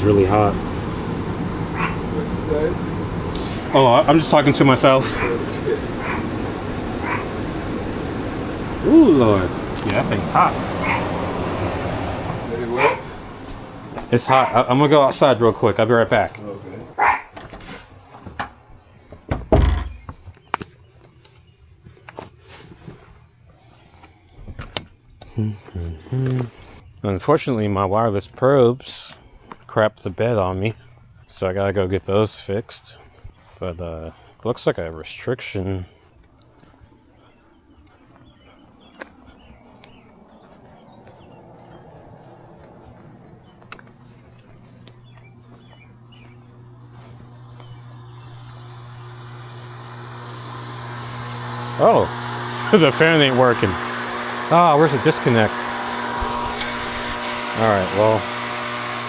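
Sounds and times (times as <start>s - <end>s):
air conditioner compressor hum: 0.0s - 17.3s, 38.4s - 59.0s
birds chirping: 0.0s - 22.2s, 23.5s - 59.0s
footsteps: 9.5s - 14.5s, 35.8s - 48.0s
heavy thump: 19.3s - 20.1s.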